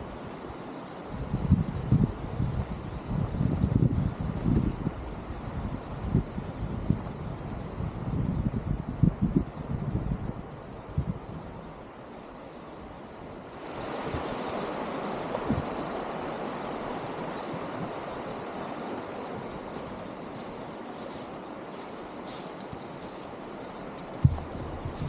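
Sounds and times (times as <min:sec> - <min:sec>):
rushing water: 0:11.8 - 0:25.0.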